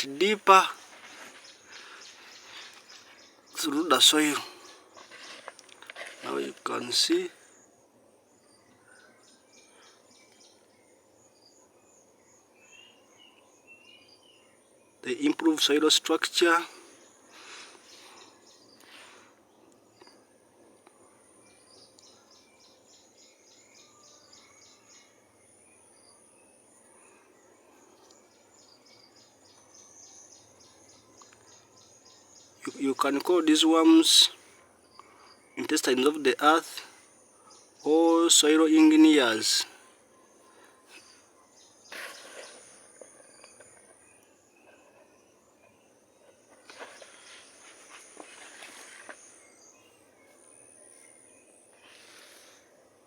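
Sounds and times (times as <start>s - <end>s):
faint rustling: 0.0s - 6.9s, 46.2s - 49.7s
faint outdoor ambience: 0.0s - 53.0s.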